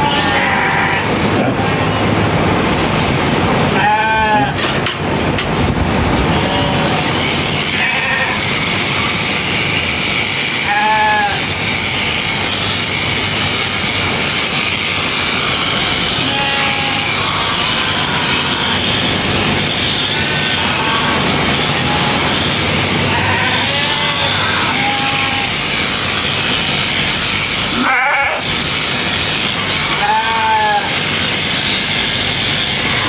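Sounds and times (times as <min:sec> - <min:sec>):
sheep bleating: 0:00.0 - 0:01.8, 0:03.8 - 0:04.6, 0:07.6 - 0:09.2, 0:10.6 - 0:11.5, 0:16.1 - 0:19.1, 0:20.6 - 0:22.4, 0:23.1 - 0:25.8, 0:27.6 - 0:28.5, 0:29.8 - 0:31.0
shearing clippers buzzing: 0:06.2 - 0:33.0.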